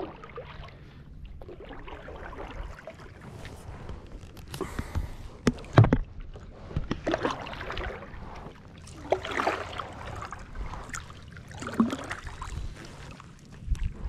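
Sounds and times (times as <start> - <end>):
paddle splashing in water: 0.0 - 3.9, 4.6 - 14.0.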